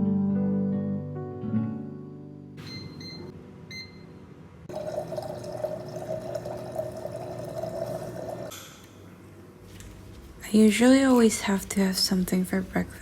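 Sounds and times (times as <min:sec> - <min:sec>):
water pouring into a cup: 0:04.7 - 0:08.5.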